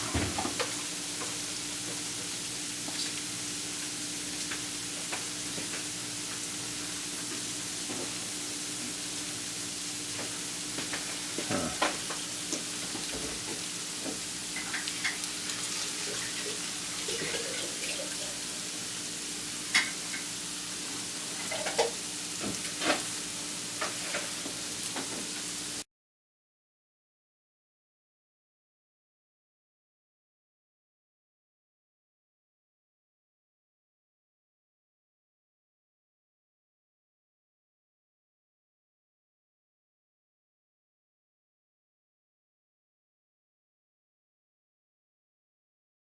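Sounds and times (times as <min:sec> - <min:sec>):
food sizzling in a pan: 0:00.0 - 0:25.8.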